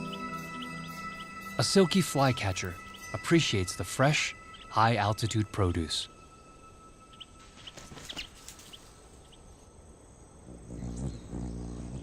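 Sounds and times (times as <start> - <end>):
bird chirps: 0.0 - 9.7, 10.5 - 12.0
high insect drone: 0.0 - 12.0.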